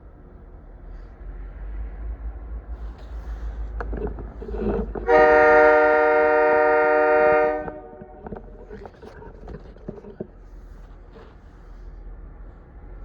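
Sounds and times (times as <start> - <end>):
locomotive air horn chord: 5.0 - 8.2.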